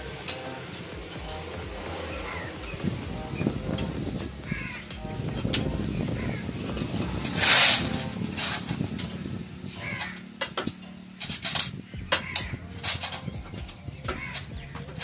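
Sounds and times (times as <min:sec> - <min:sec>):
low rumble: 0:00.9 - 0:10.2.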